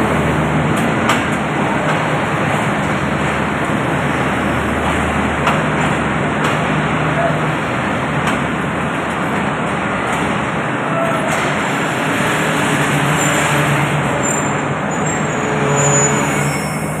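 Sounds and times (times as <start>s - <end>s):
train wheels rumbling on rails: 0.0s - 17.0s
high brake squeals: 13.1s - 17.0s.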